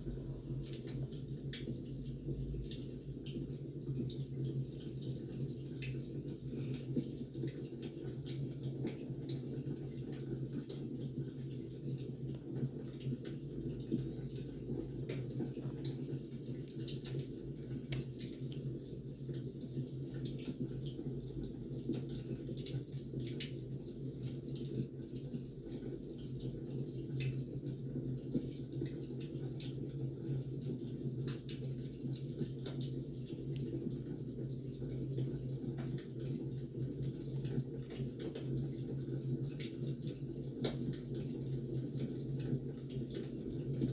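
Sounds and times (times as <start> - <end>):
firewood crackling and popping: 11.5 - 21.0.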